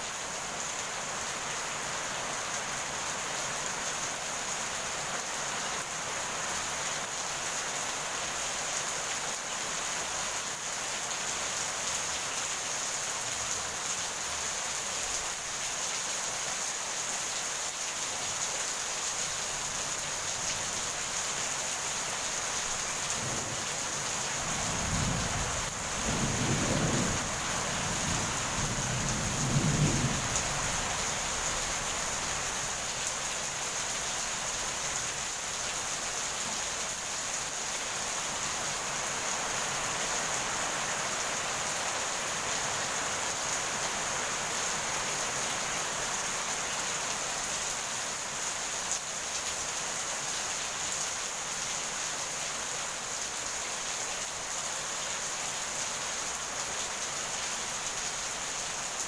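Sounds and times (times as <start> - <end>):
heavy rain pouring: 0.0 - 59.0
thunder rumble: 23.1 - 31.9.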